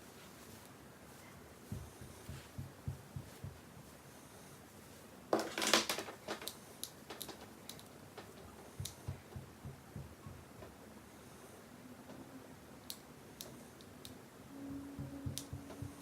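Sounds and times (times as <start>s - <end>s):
light clicks and taps: 6.3s - 10.8s, 15.0s - 16.0s.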